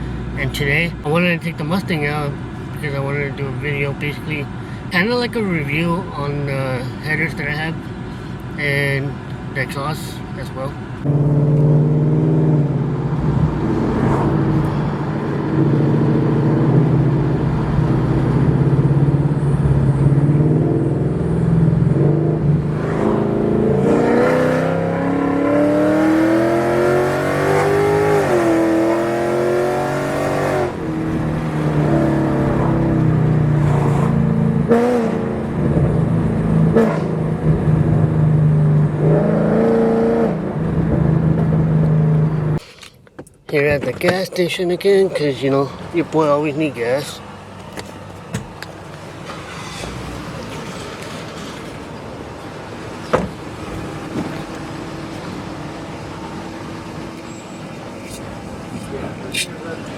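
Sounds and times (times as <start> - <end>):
car engine revving: 11.0 - 42.6.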